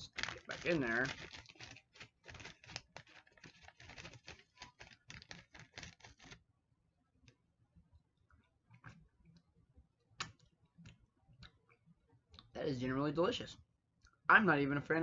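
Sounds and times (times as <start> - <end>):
candy wrapper crinkling: 0.0 - 6.4.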